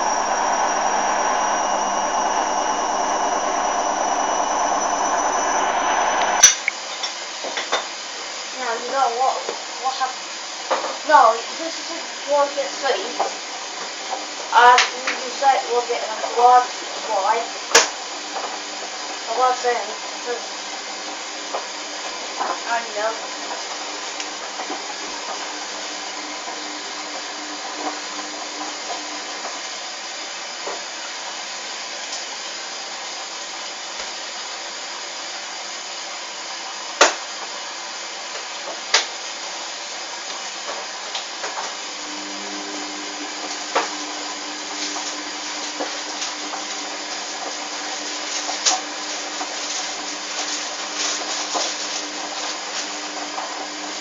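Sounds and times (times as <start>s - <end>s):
low hum: 0.0s - 6.5s
washing machine whirring: 0.0s - 6.5s.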